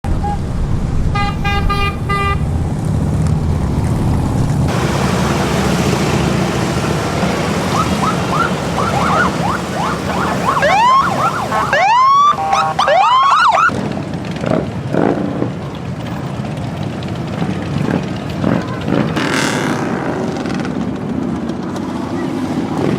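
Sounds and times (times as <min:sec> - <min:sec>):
motorcycle engines rumbling: 0:00.0 - 0:22.9
siren yelping: 0:07.6 - 0:13.7.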